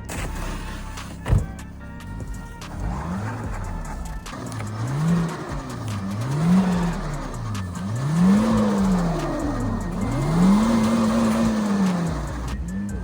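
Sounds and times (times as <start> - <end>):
car engine revving hard: 0.0 - 13.0
tyres spinning in snow: 0.0 - 13.0.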